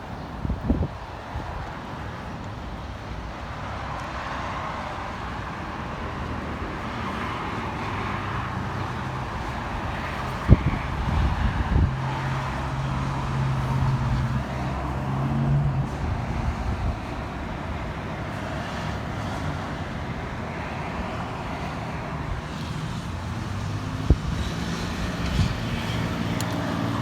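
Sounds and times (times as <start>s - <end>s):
gusting wind: 0.0s - 27.0s
road traffic rushing: 0.0s - 27.0s
vehicle engine humming: 7.6s - 27.0s.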